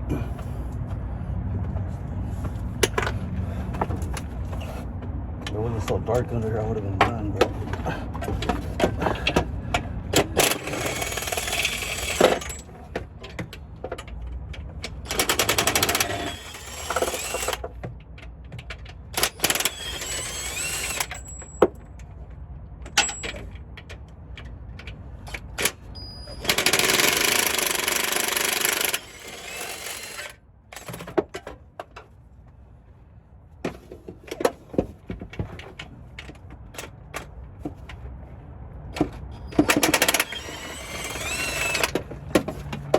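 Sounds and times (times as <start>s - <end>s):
tools clicking and clanking: 5.4s - 32.1s, 39.0s - 42.9s
impact wrench hammering: 15.1s - 17.6s, 26.4s - 30.3s.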